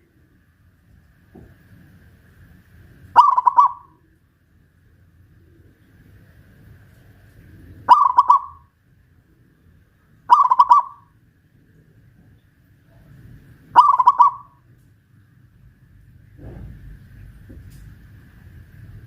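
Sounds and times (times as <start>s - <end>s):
dove cooing: 3.2s - 4.2s, 7.3s - 8.7s, 10.3s - 11.1s, 13.8s - 14.6s.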